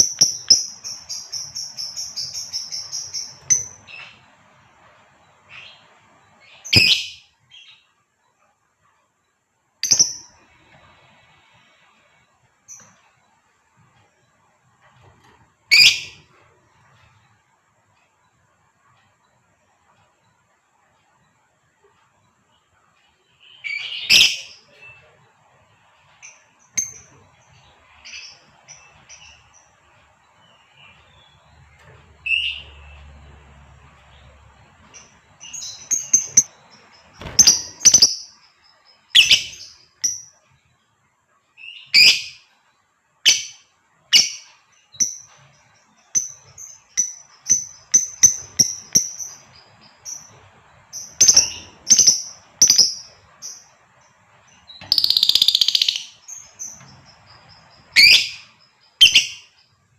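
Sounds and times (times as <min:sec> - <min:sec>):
lovebird chirping: 0:00.0 - 0:08.0, 0:09.8 - 0:13.5, 0:15.2 - 0:17.5, 0:22.5 - 0:25.2, 0:25.8 - 0:40.9, 0:41.5 - 0:59.9
lovebird shrill calls: 0:06.7 - 0:07.3, 0:15.7 - 0:16.2, 0:39.1 - 0:39.7, 0:54.9 - 0:56.7, 0:58.0 - 0:59.5.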